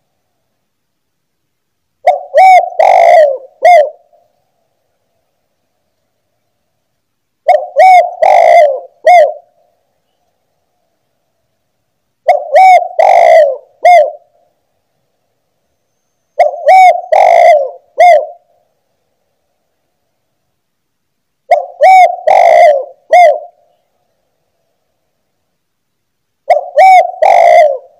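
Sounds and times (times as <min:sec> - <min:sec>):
dove cooing: 0:02.0 - 0:04.3, 0:07.4 - 0:09.6, 0:12.2 - 0:14.4, 0:16.4 - 0:18.5, 0:21.5 - 0:23.8, 0:26.4 - 0:27.9.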